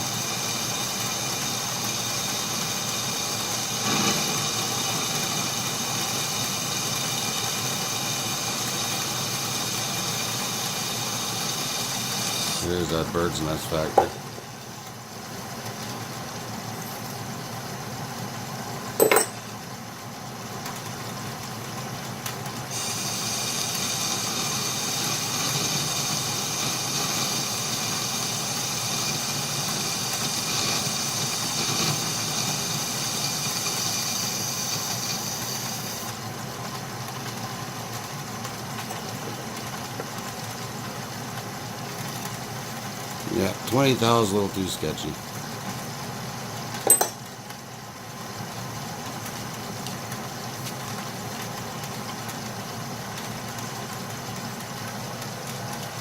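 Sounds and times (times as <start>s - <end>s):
high hissing cutting whine: 0.0s - 14.4s, 22.8s - 36.1s.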